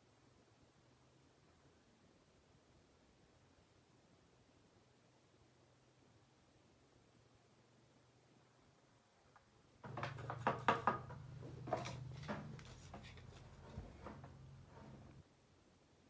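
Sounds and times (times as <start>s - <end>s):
sharp clicks and knocks: 9.8s - 15.1s.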